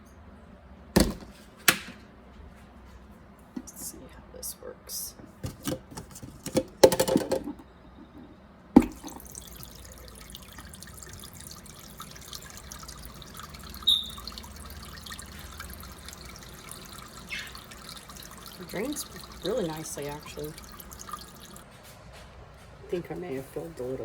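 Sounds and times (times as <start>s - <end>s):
plastic machine clattering: 5.4s - 7.6s
water trickling into a sink: 8.8s - 21.6s.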